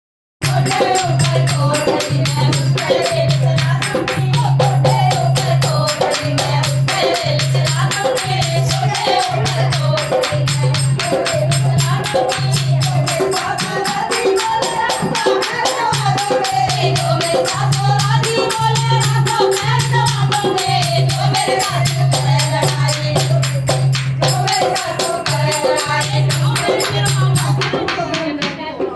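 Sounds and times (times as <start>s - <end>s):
dholak drum: 0.4s - 28.9s
jingling percussion: 0.4s - 28.9s
women singing folk song: 0.4s - 28.9s.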